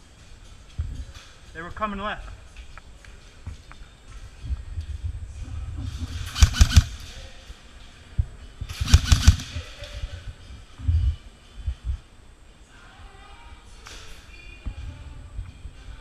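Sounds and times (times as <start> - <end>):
airsoft gun rapid shots: 6.2 - 7.0, 8.7 - 9.7.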